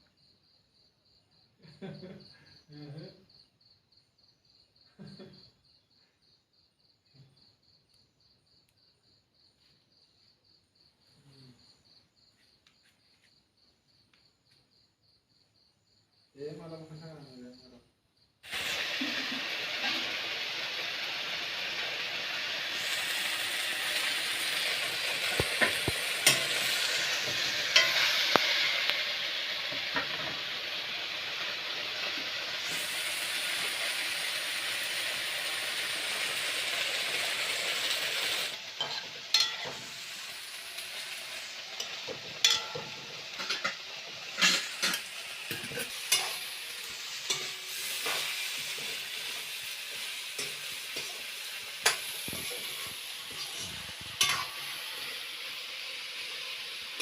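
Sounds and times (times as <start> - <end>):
food sizzling in oil: 18.4 - 57.0
utensil scraping a pan: 41.8 - 46.4, 47.2 - 49.4, 53.3 - 54.6.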